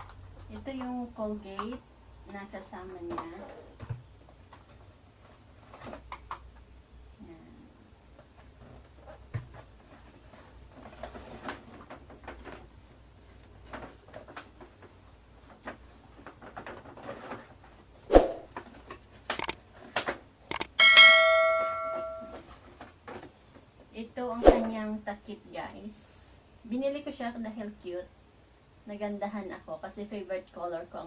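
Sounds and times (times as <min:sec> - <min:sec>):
ceramic mug ringing ding: 0:20.8 - 0:22.4.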